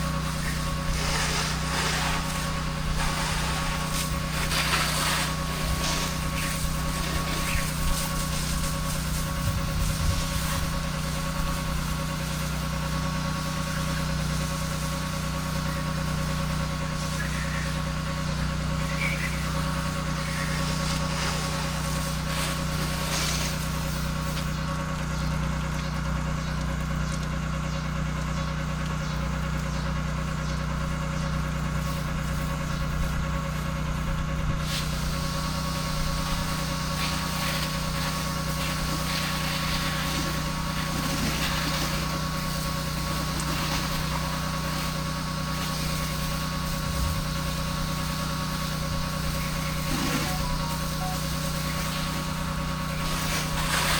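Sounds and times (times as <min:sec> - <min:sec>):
hiss: 0:00.0 - 0:12.6, 0:13.5 - 0:24.5, 0:34.6 - 0:53.9
pressure washer running: 0:00.0 - 0:53.9.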